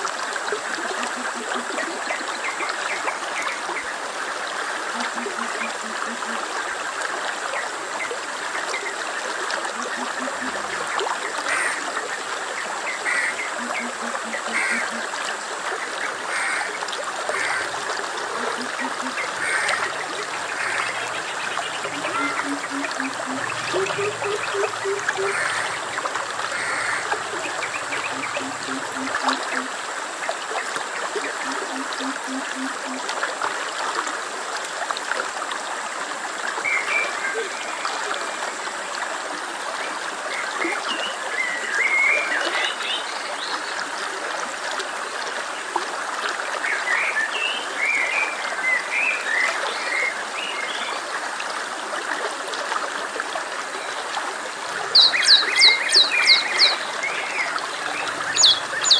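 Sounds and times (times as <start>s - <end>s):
stream water running: 0.0s - 58.9s
low repeated calls: 17.3s - 29.8s, 54.9s - 58.9s
high bird chirps: 19.3s - 29.1s, 54.9s - 56.9s, 57.8s - 58.9s.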